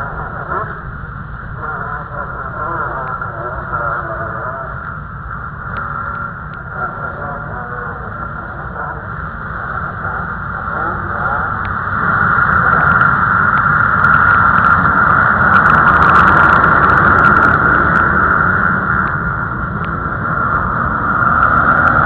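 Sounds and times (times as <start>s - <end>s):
motocross bikes revving: 9.1s - 22.0s.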